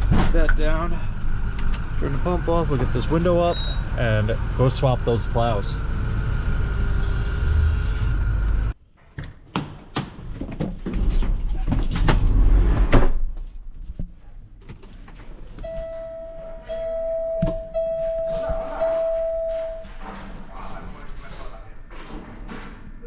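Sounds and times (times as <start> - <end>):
knocks and clunks: 0.0 - 0.8
electronic warning chime: 15.6 - 20.0.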